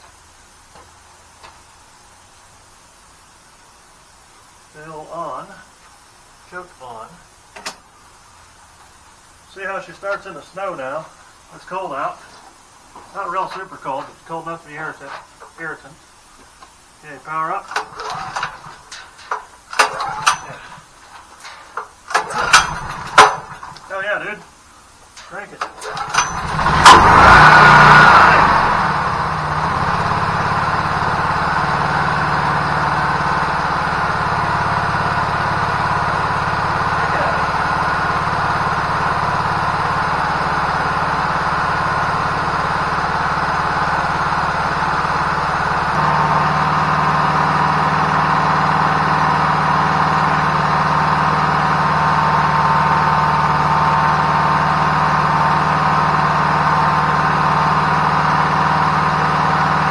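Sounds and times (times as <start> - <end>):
generator engine running: 16.9 - 59.9.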